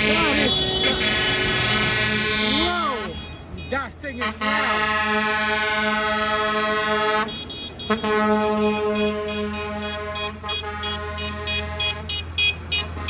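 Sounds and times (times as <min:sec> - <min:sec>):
vehicle air horn blast: 0:00.0 - 0:03.5, 0:04.2 - 0:13.0.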